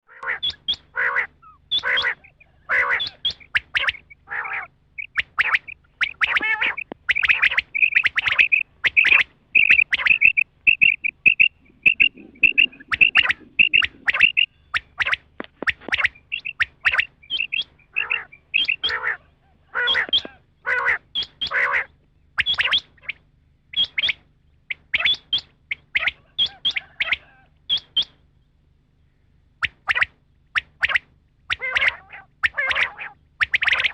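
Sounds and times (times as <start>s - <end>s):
quail calling: 0.1s - 28.2s, 29.1s - 33.9s
faint steady hum: 0.1s - 33.9s.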